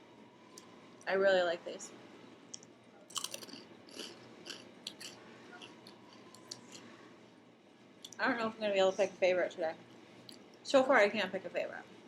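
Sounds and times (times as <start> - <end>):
person crunching rice crackers: 3.1 - 6.8.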